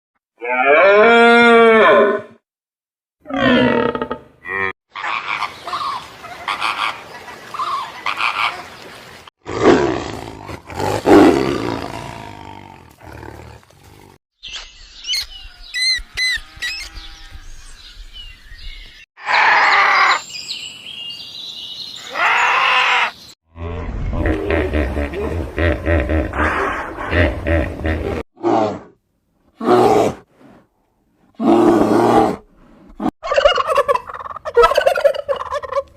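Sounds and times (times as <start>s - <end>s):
farm animals calling: 4.5s - 8.7s, 15.2s - 17.8s, 22.0s - 23.4s, 33.2s - 35.9s
bird chirping: 14.4s - 19.0s, 20.1s - 23.4s
long drawn-out animal calls: 19.2s - 20.2s, 22.0s - 23.2s.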